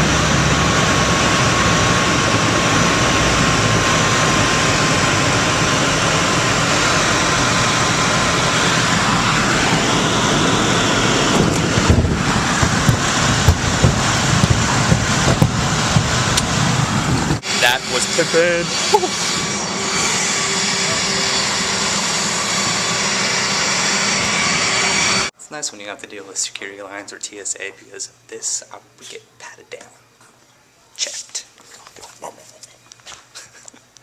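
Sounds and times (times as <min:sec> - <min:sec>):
airplane engine noise in cabin: 0:00.0 - 0:25.3
knocks and bumps: 0:11.4 - 0:16.8.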